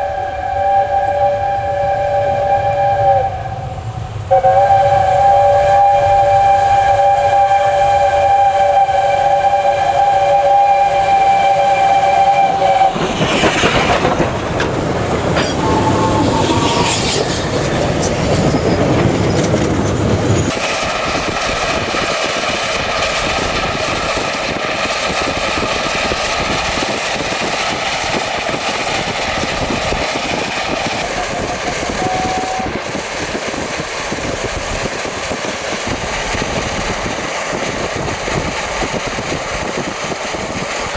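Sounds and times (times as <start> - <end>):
steam locomotive whistle: 0.0 - 14.1, 15.4 - 17.5, 30.2 - 32.9
steam locomotives working: 0.0 - 40.9.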